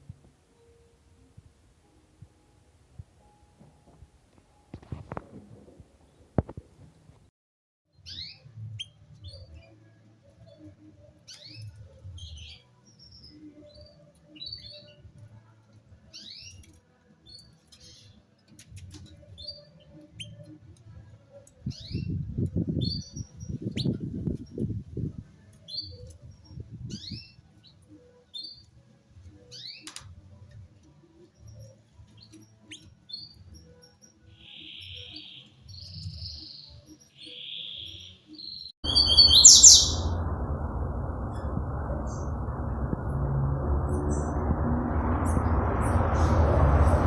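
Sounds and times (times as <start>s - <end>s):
small birds chirping: 31.2s - 40.2s
low rumbling noise: 38.8s - 47.0s.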